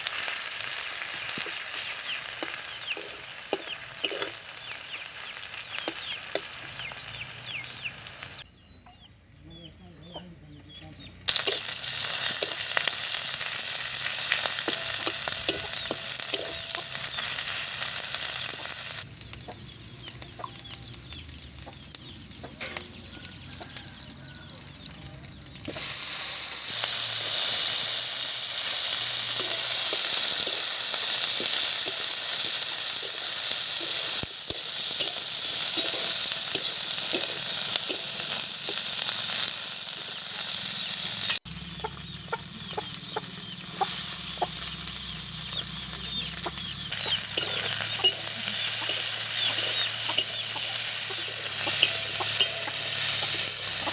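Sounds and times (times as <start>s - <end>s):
food sizzling in hot oil: 0.0s - 8.4s, 10.8s - 53.9s
scraping in a pan: 1.2s - 4.5s, 25.7s - 39.6s, 42.6s - 53.9s.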